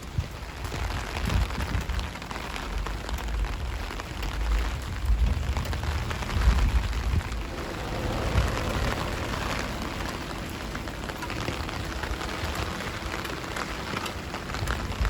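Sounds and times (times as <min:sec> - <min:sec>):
rain falling on street: 0:00.0 - 0:15.0
low rumble: 0:04.4 - 0:13.7.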